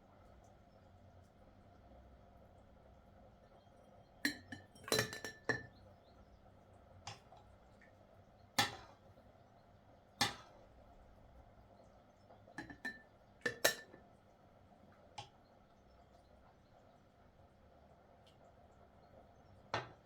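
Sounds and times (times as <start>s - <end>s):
dishes and utensils clinking: 4.3s - 5.7s, 12.6s - 14.0s.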